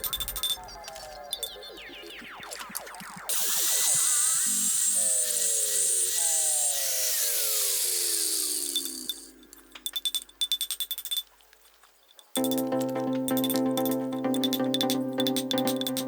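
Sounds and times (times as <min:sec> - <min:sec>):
music: 0:00.0 - 0:03.2, 0:12.4 - 0:16.0
rapid sharp clicks: 0:00.0 - 0:11.2, 0:12.4 - 0:16.0
power tool whining: 0:03.3 - 0:09.5.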